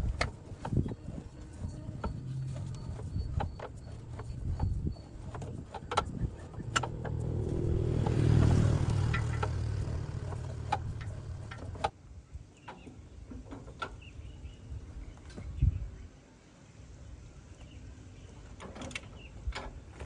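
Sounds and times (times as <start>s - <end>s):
sharp clicks and knocks: 0.0s - 11.9s
vehicle engine rumbling: 0.0s - 11.9s.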